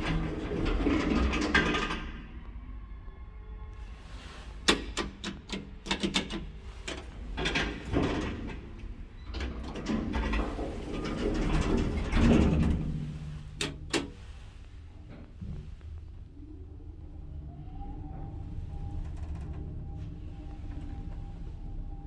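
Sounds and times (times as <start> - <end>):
elevator creaking and rubbing: 3.9 - 22.0
elevator mechanism clicks and knocks: 4.7 - 8.6.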